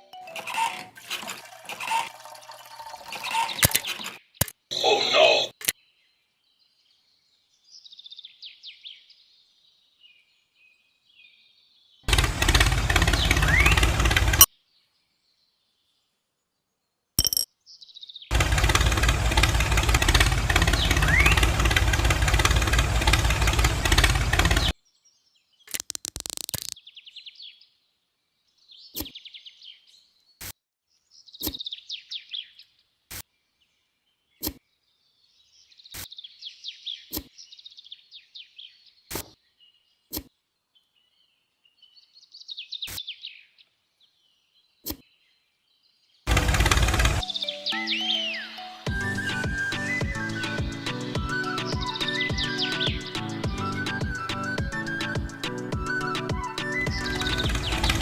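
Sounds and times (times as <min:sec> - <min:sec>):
birds chirping: 0:00.0 - 0:25.3, 0:40.8 - 0:58.0
loud steady noise: 0:12.1 - 0:14.4, 0:18.3 - 0:24.7, 0:46.3 - 0:47.2, 0:56.9 - 0:58.0
sharp clicks: 0:12.1 - 0:14.5, 0:18.3 - 0:24.7, 0:25.7 - 0:26.8.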